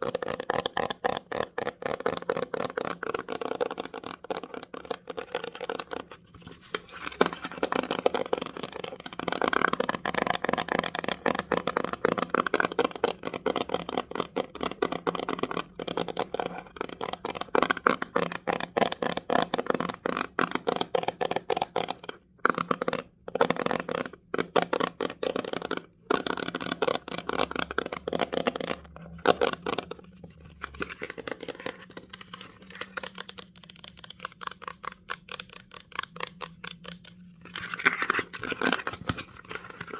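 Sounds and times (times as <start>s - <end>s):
fingers tapping on object: 7.7s - 39.9s.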